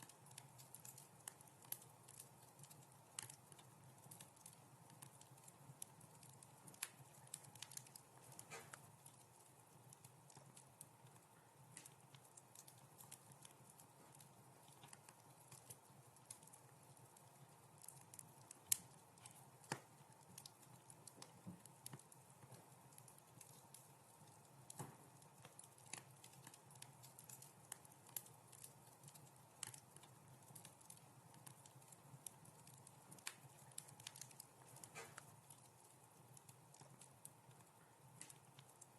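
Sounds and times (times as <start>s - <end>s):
faint steady hiss: 0.0s - 38.9s
wood fire crackling: 0.0s - 38.9s.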